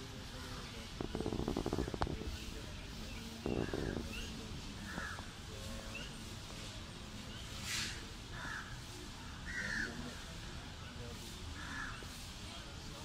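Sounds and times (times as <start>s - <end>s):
brief rushing hiss: 7.5s - 8.2s.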